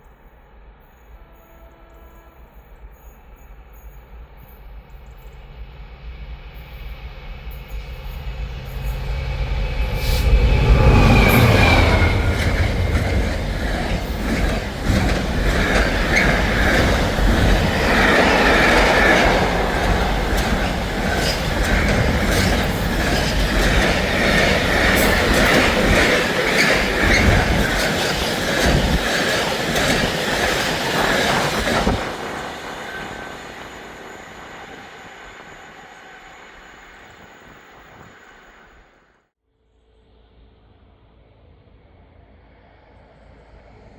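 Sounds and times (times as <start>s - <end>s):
steady wheel squeal: 10.0s - 38.6s
wheels clattering over rail joints: 11.2s - 33.8s.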